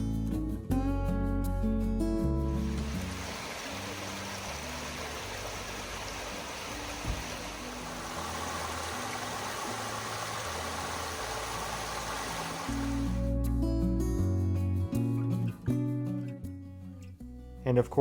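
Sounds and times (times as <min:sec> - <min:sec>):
creek running over rocks: 0:02.6 - 0:13.2.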